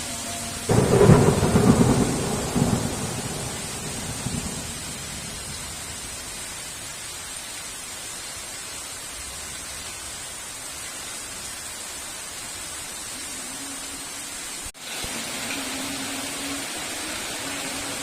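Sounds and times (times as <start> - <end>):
heavy rain hissing: 0.0 - 18.0
thunder rumble: 0.6 - 6.8.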